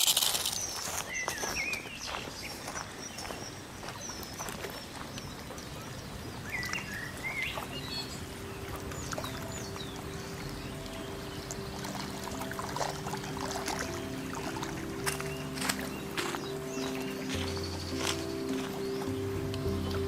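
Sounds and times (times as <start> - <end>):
birds chirping: 0.0 - 20.0
soft held musical chord: 7.6 - 20.0.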